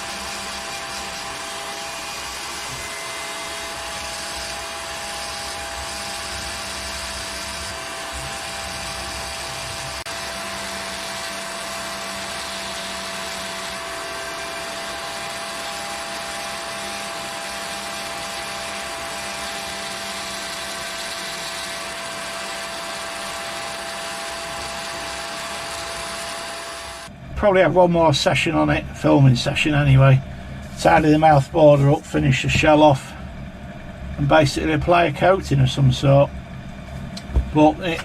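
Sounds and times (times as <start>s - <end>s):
power tool whining: 0.0s - 27.2s
low hum: 27.0s - 38.0s.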